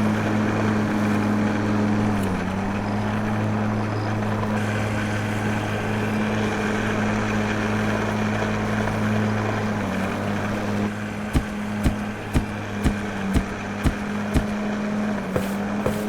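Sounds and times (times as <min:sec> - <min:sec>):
sharp knock: 0:11.3 - 0:14.6.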